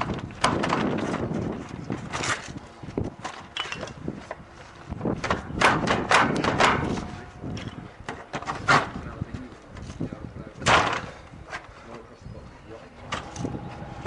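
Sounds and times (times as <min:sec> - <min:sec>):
knocks and thuds: 0:05.2 - 0:07.1.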